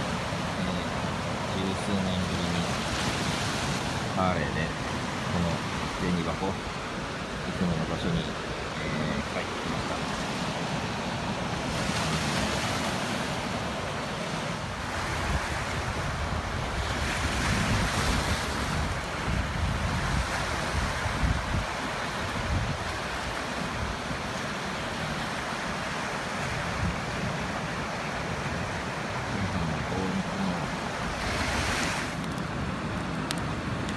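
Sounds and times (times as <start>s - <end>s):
waves washing onto beach: 0.0s - 33.9s
wind buffeting microphone: 14.6s - 24.4s, 26.4s - 27.6s.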